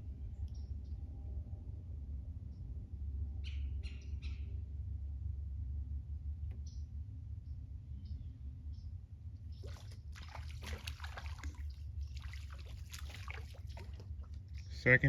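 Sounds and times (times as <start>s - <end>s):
steady low rumble: 0.0s - 10.5s
fish splashing in water: 9.6s - 14.8s.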